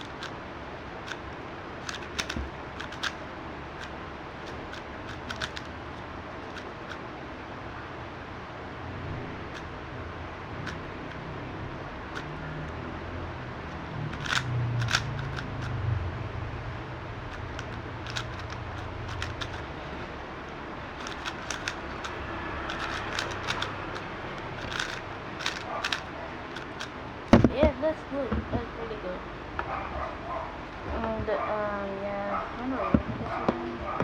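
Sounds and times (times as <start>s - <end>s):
speed cube layers clicking: 0.0s - 7.1s, 9.4s - 9.7s, 10.5s - 12.9s, 13.5s - 15.8s, 17.3s - 27.4s
steady low hum: 0.0s - 34.0s.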